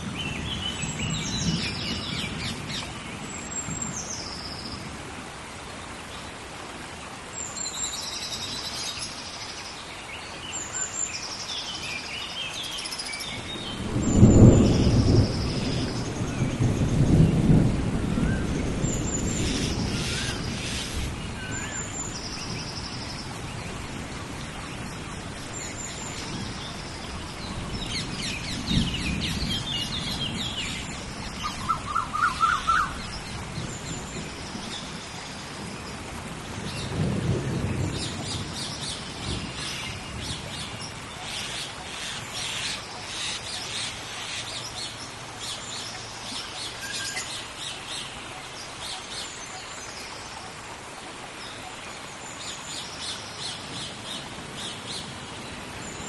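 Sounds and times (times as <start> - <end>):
heavy rain: 0.0 - 56.0
thunder rumbling: 13.4 - 21.5, 26.2 - 40.8
birds calling: 24.8 - 35.4.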